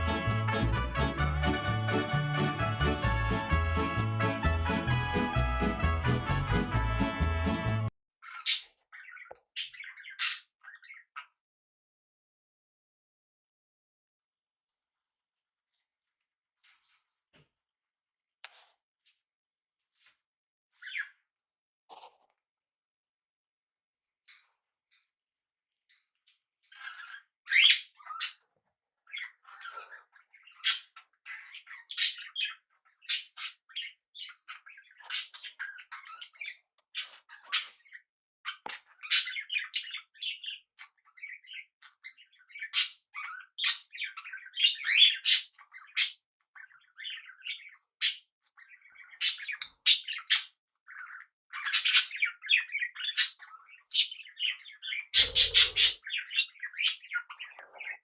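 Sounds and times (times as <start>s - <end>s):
parrot squawks: 0.0s - 11.0s, 26.8s - 28.4s, 29.1s - 34.3s, 34.9s - 40.6s, 48.0s - 58.0s
small parrots chirping: 8.2s - 11.4s, 20.8s - 21.2s, 26.7s - 28.5s, 29.1s - 58.0s.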